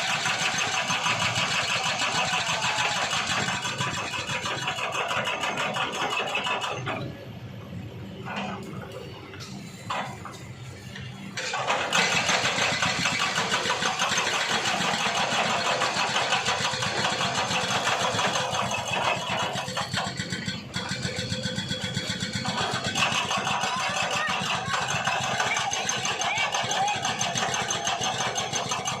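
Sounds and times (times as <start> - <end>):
small engine rattly buzz: 11.4 - 29.0.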